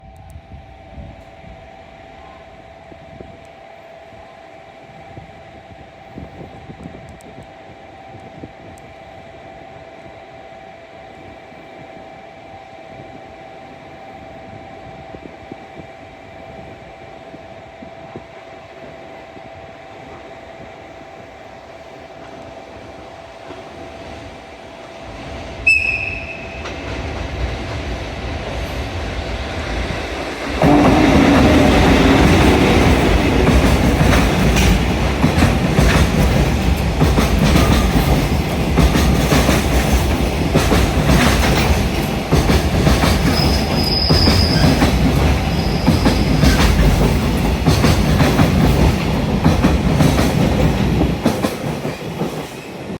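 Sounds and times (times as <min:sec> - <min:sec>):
train rumbling past: 0:00.0 - 0:52.9
locomotive whistle blast: 0:25.6 - 0:26.7, 0:30.6 - 0:32.2, 0:43.3 - 0:44.8
wheels clacking over rail joints: 0:29.6 - 0:52.7.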